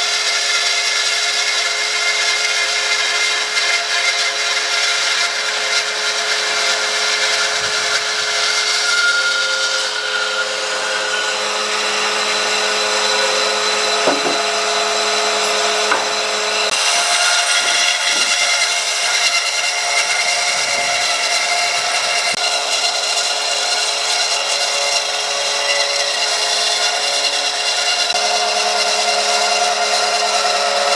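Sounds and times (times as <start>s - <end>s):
wood being worked: 3.6s - 30.8s
power tool motor whine: 7.1s - 30.9s.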